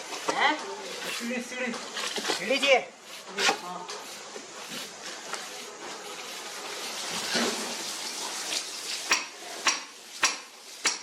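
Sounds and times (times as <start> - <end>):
hand tool scraping plaster: 0.2 - 7.8
sharp metallic taps: 9.1 - 11.0.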